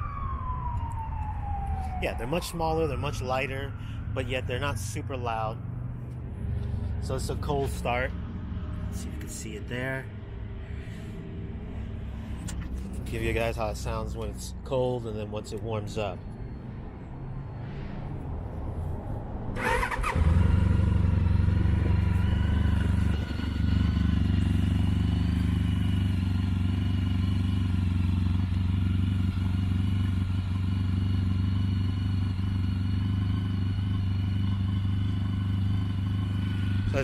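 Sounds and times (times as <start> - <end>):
motorcycle engine starting and idling: 19.6 - 37.0.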